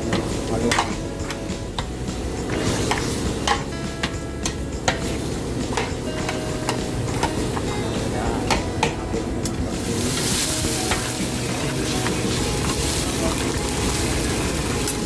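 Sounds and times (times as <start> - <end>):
chicken sizzling in hot oil: 0.0 - 8.3, 9.6 - 15.0
utensil clicking against pan: 0.1 - 5.1, 5.7 - 7.7.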